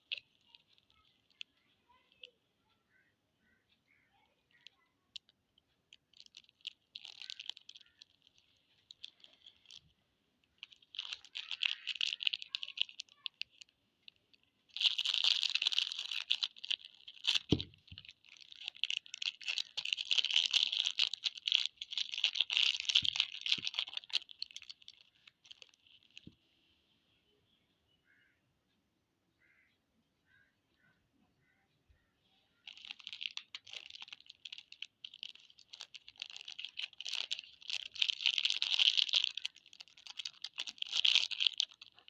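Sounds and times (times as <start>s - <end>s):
plastic wrappers crinkling and tearing: 0.0s - 2.3s, 4.5s - 26.3s, 32.6s - 42.0s.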